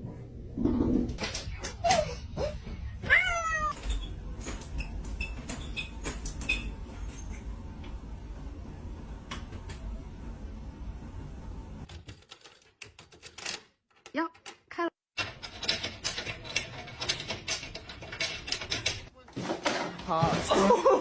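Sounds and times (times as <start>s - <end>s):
cat meowing: 3.0s - 3.8s.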